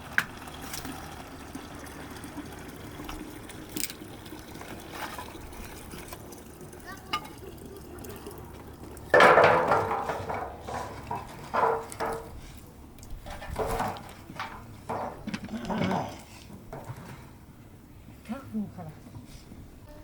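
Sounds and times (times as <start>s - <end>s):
metal pots clattering: 0.3s - 17.4s
dishes knocking and scraping: 9.1s - 12.4s, 13.2s - 17.3s.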